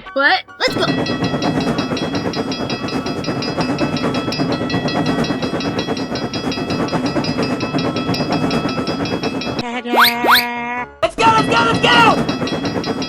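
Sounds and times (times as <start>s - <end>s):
animated train running: 0.1s - 13.0s
high ringing tones: 0.7s - 10.5s, 11.2s - 13.0s.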